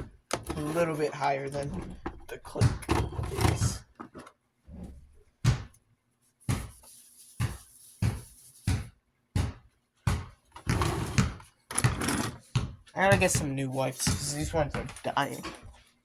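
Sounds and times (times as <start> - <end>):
metal fan knocks and clunks: 1.6 - 4.3.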